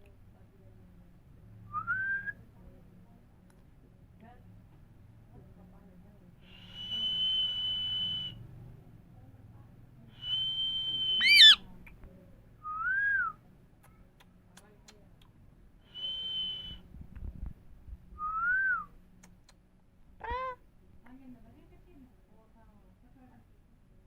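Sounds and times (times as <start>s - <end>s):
parrot whistling: 11.1s - 11.6s
parrot squawk: 11.2s - 11.6s.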